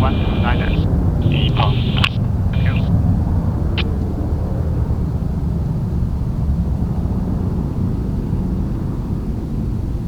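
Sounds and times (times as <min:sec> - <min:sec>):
jet engines rumbling: 0:00.0 - 0:05.7.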